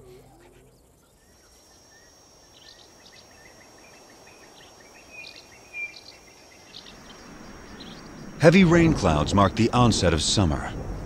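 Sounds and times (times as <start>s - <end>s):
bird chirps: 0.0s - 8.4s
high-pitched insect drone: 1.0s - 8.6s.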